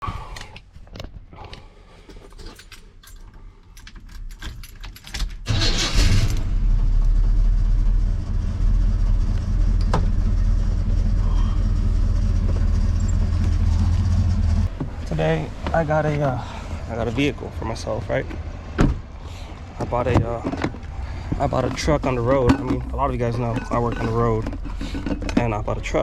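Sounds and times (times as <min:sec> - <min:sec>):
keys jangling: 0:02.2 - 0:05.5
engine starting and idling: 0:05.4 - 0:14.7.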